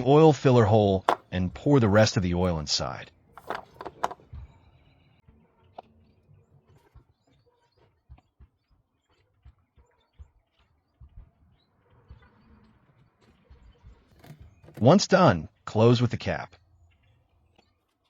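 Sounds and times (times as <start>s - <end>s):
oil cap and jug clicks: 1.1s - 1.3s, 3.4s - 4.2s.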